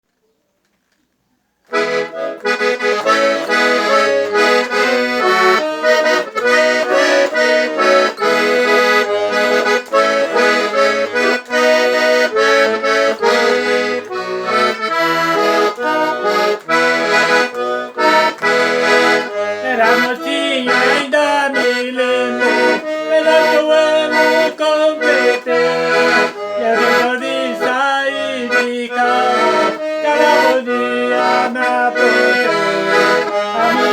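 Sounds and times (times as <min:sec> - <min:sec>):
accordion playing: 0:01.7 - 0:33.9.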